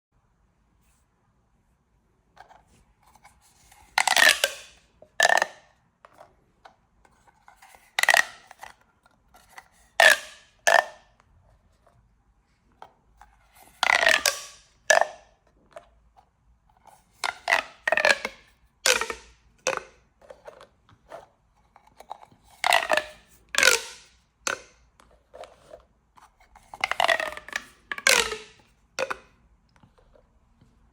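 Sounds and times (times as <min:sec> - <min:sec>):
plastic pop tubes crackling: 0:03.6 - 0:05.7, 0:07.6 - 0:08.8, 0:09.5 - 0:11.1, 0:13.6 - 0:15.7, 0:17.2 - 0:20.1, 0:22.5 - 0:25.7, 0:26.5 - 0:29.4.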